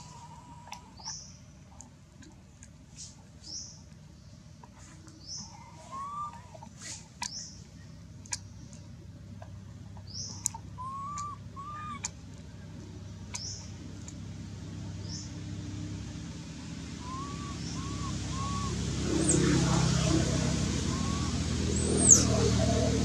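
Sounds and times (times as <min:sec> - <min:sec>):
low steady hum: 0:00.0 - 0:23.0
bird chirping: 0:05.1 - 0:08.8, 0:10.0 - 0:12.1, 0:13.3 - 0:13.8, 0:17.0 - 0:23.0
whistled bird notes: 0:10.1 - 0:12.1, 0:17.0 - 0:19.5, 0:20.9 - 0:22.8.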